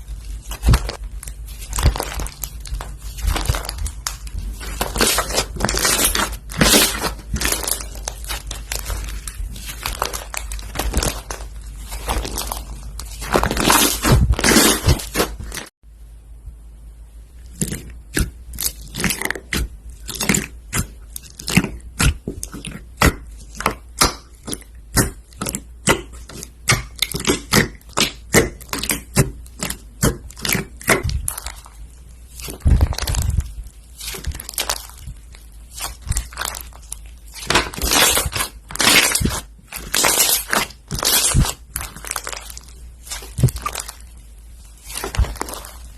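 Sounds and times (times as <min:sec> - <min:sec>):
slime crackling and popping: 0:00.0 - 0:15.7, 0:17.5 - 0:45.9.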